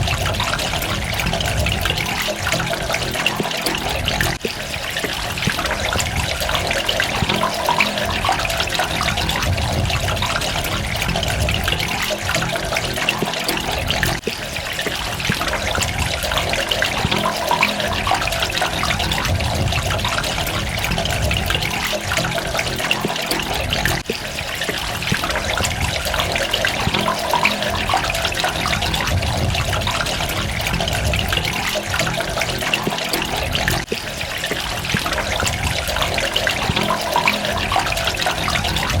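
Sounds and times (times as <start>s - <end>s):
water running and trickling: 0.0s - 39.0s.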